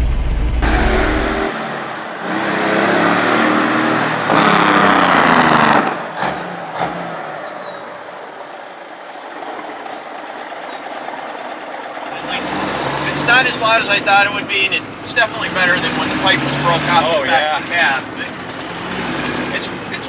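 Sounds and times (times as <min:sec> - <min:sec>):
truck diesel engine: 0:00.0 - 0:20.0.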